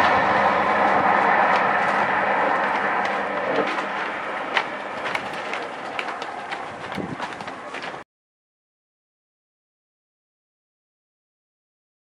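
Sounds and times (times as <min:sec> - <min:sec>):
train wheels rushing on rails: 0:00.0 - 0:08.0.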